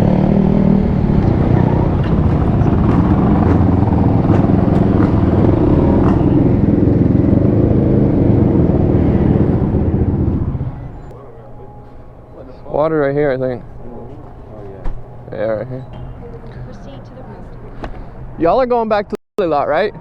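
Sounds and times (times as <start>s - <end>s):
dirt bike engine running: 0.0s - 11.1s.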